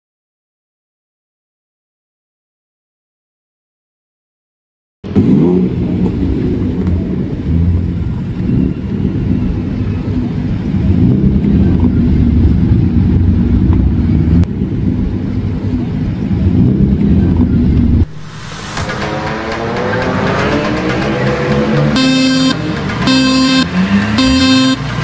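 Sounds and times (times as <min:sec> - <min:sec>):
car engine at low revs: 0:05.0 - 0:25.0.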